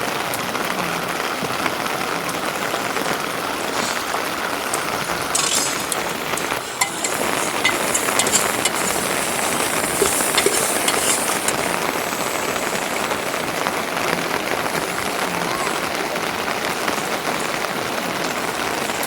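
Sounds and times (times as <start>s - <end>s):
heavy rain falling: 0.0s - 19.0s
sharp ticks of drops: 5.3s - 15.2s.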